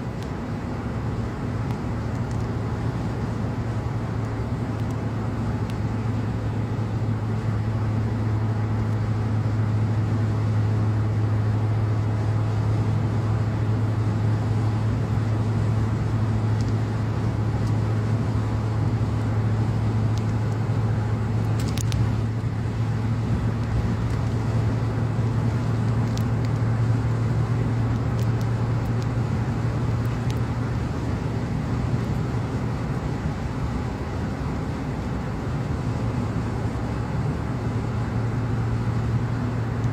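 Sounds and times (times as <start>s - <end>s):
car road noise at highway speed: 0.0s - 39.9s.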